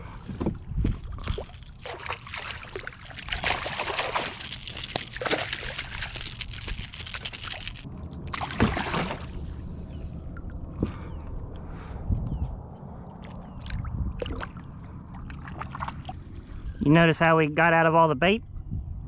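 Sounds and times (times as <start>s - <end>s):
water splashing and trickling: 0.6s - 11.0s, 13.2s - 16.6s
sharp water splash: 1.1s - 9.6s.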